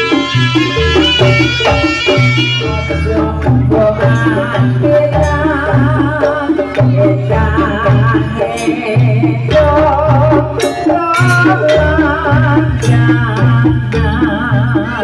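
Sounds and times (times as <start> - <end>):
repeating bass: 0.0 - 8.4
drums and percussion: 0.0 - 15.0
wavering melody line: 0.0 - 15.0.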